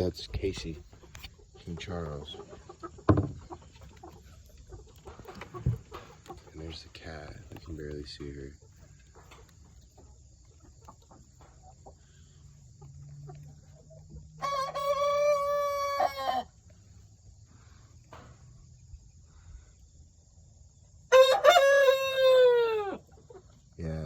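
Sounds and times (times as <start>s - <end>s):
rooster crowing: 14.4s - 16.5s, 21.1s - 23.0s.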